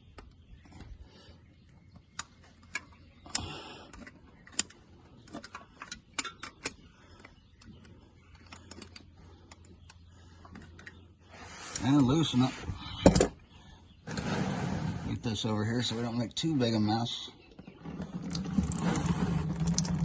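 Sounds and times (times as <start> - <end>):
scraping rustle: 14.1 - 16.2, 17.8 - 20.0.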